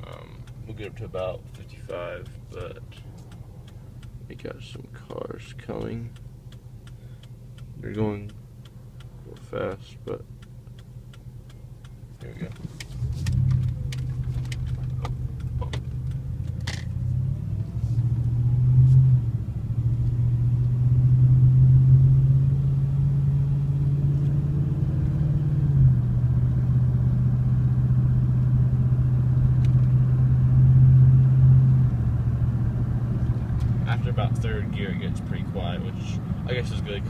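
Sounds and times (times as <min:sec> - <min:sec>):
truck exhaust rumbling drone: 0:00.0 - 0:37.0.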